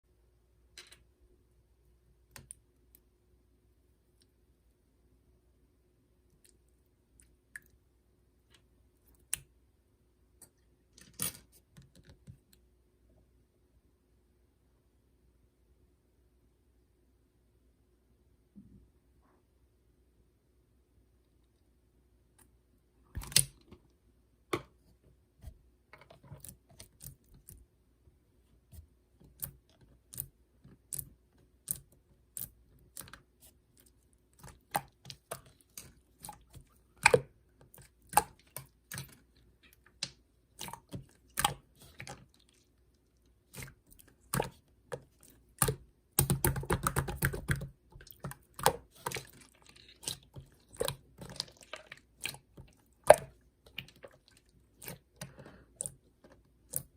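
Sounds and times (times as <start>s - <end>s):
slime clicking and popping: 45.6s - 49.2s.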